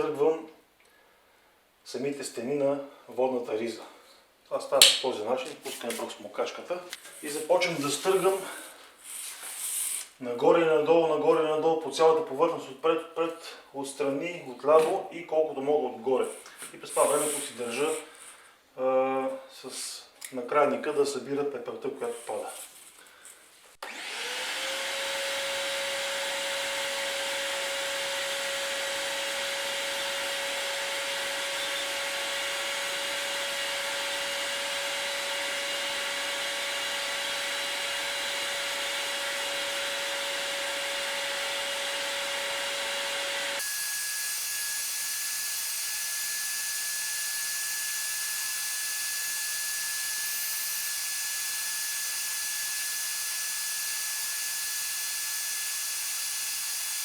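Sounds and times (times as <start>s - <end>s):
vacuum cleaner running: 23.8s - 57.0s.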